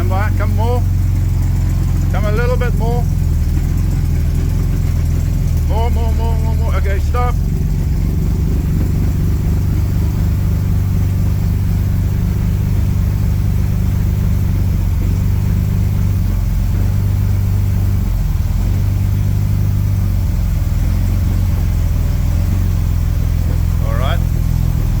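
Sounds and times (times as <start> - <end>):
car engine running at low revs: 0.0 - 25.0.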